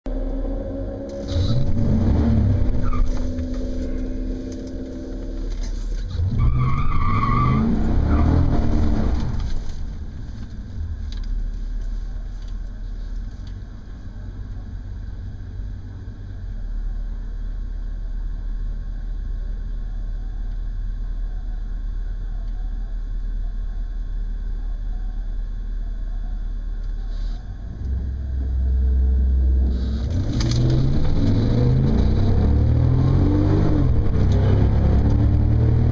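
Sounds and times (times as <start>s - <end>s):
car accelerating hard: 0.1s - 10.0s, 28.8s - 35.9s
car engine revving and idling: 0.1s - 35.9s.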